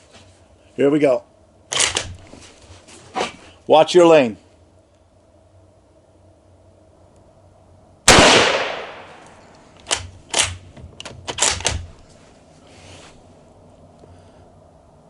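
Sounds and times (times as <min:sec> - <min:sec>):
rifle shot: 0:08.1 - 0:10.6
rifle bolt metallic clacks: 0:08.7 - 0:12.0.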